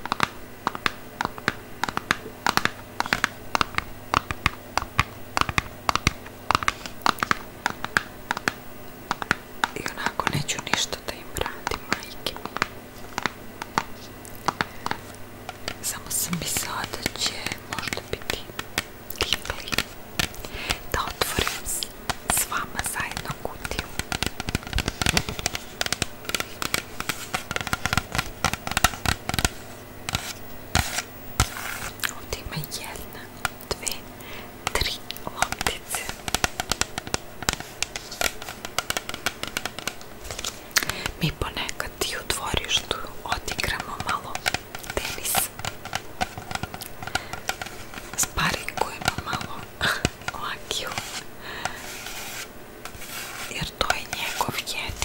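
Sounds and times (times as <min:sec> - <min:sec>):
crisp clicks and scratches: 0:00.0 - 0:34.0, 0:34.6 - 0:55.0
fingernails tapping on package: 0:00.0 - 0:55.0
tennis ball container opening: 0:12.4 - 0:15.8, 0:35.4 - 0:41.2.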